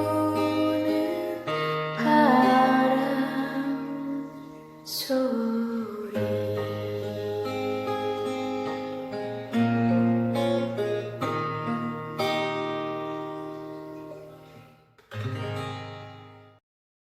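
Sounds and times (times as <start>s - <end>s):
acoustic guitar strumming chords: 0.0s - 16.6s.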